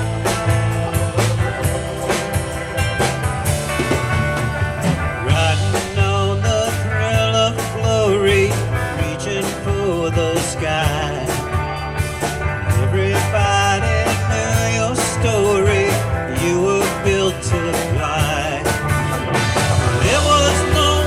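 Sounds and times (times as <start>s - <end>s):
drum beat: 0.0s - 21.0s
guitars: 0.0s - 21.0s
keyboards: 0.0s - 21.0s
pulsing bass: 0.0s - 21.0s
person singing: 5.1s - 11.6s, 12.7s - 19.4s, 20.0s - 21.0s.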